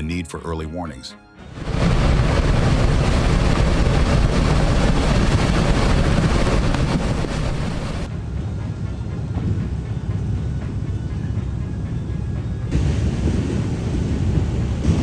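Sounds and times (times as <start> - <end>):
mud flow rushing down a channel: 1.6 - 8.1.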